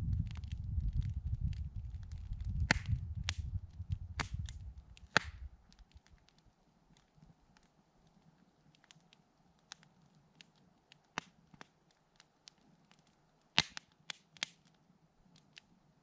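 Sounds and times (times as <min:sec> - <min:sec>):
low rumble: 0:00.0 - 0:05.5
campfire wood crackling: 0:00.0 - 0:16.0.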